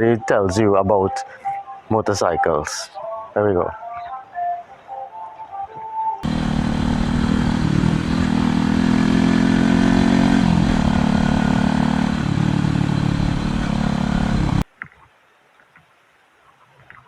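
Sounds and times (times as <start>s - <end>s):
motorcycle engine running: 6.2s - 14.6s.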